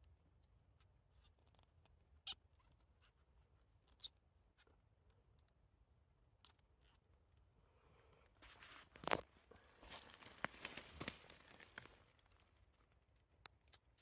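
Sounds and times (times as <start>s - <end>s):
mushrooms snapping off log: 10.0s - 12.0s.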